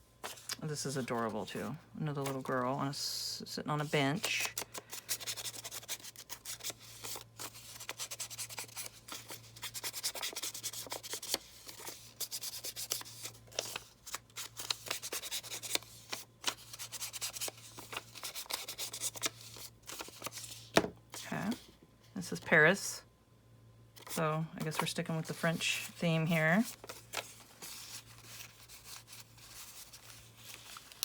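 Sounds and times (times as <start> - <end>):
paper rustling and crinkling: 4.2 - 21.8, 24.0 - 31.0.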